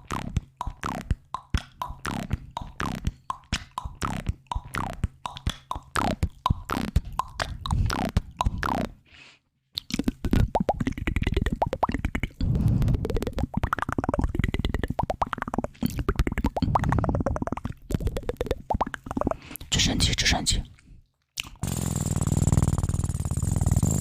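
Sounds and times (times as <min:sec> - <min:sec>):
wet mouth pops and tongue clicks: 0:00.0 - 0:09.0, 0:09.8 - 0:19.7, 0:21.4 - 0:21.6.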